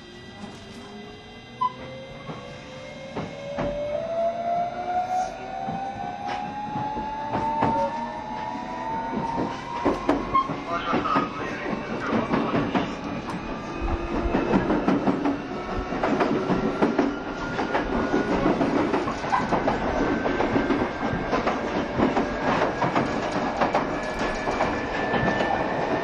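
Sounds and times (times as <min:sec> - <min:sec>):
train wheels clattering over rails: 0:05.6 - 0:26.0.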